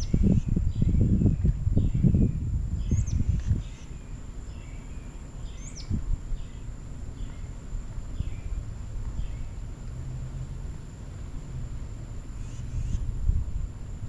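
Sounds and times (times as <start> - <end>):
small birds chirping: 0.0 - 9.6, 12.4 - 13.1.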